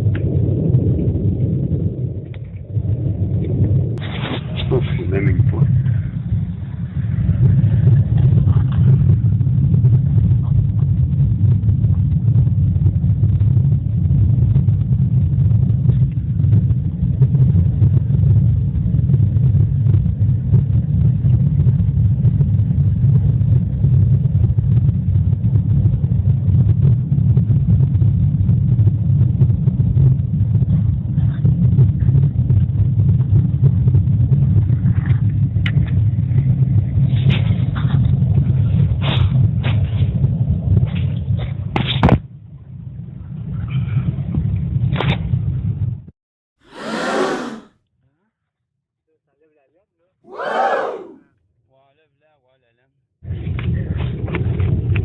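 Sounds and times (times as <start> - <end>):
chimney fire rumbling and crackling: 0.0 - 35.0.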